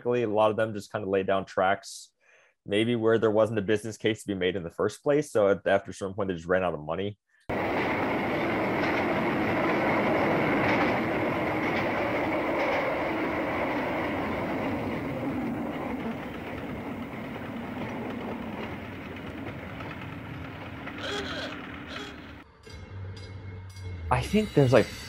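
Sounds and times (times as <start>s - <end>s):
train rumbling on rails: 7.5s - 22.4s.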